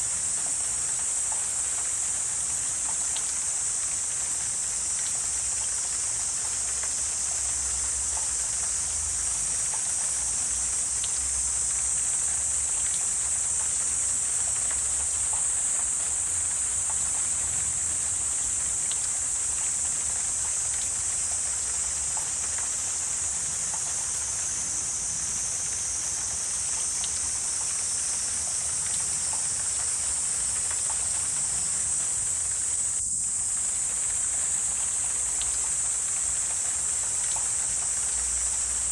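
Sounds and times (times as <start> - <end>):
insects chorus: 0.0 - 38.9
faint ticks: 0.3 - 4.2, 4.8 - 24.4, 25.7 - 32.0, 33.8 - 38.9.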